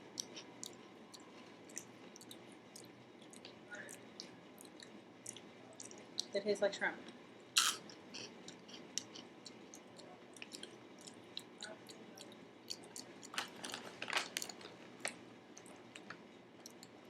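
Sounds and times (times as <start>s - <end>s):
chips crunching while chewed: 7.6s - 11.5s, 12.2s - 17.0s.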